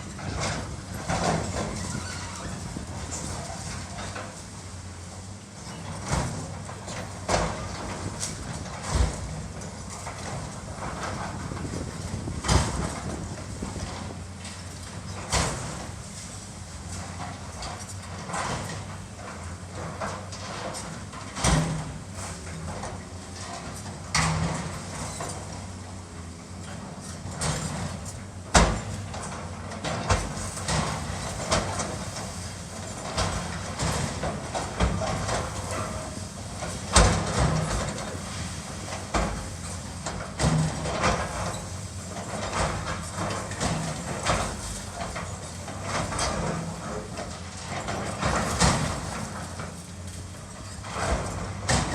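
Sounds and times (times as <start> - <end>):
heavy machine engine running: 0.0 - 51.9
debris crashing and clanking: 30.0 - 51.9.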